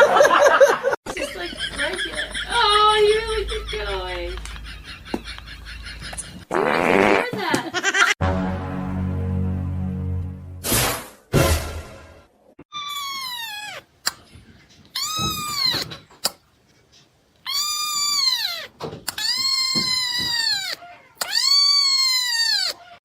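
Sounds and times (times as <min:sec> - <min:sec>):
cat yowling: 0:12.8 - 0:13.8, 0:17.5 - 0:23.0.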